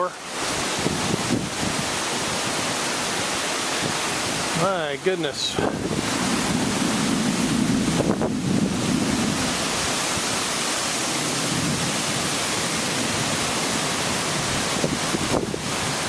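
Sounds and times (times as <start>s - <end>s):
heavy rain: 0.0s - 16.0s
strong gusty wind: 0.2s - 16.0s.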